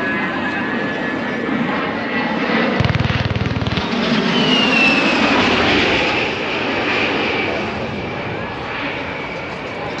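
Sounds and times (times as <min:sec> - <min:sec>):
aircraft engine running: 0:00.0 - 0:10.0
high whine: 0:02.8 - 0:05.6.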